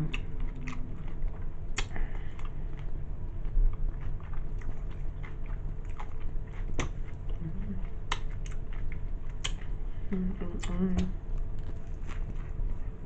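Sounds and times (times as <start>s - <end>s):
person chewing: 0.0s - 9.8s, 10.6s - 13.0s
wet mouth smacks and clicks: 1.7s - 2.5s, 6.7s - 7.0s, 8.1s - 8.6s, 9.4s - 9.7s.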